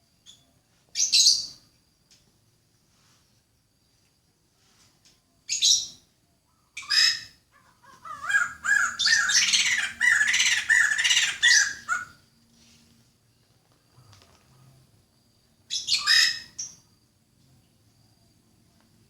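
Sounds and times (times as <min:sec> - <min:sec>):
bird calling: 0:06.5 - 0:12.2
bird chattering: 0:07.6 - 0:12.1.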